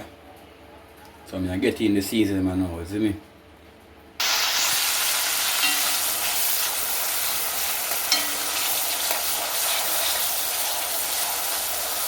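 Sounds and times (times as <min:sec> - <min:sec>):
seasoning sizzling in hot oil: 0:04.2 - 0:12.0
utensil clinking against pot: 0:05.6 - 0:06.3, 0:07.9 - 0:09.2.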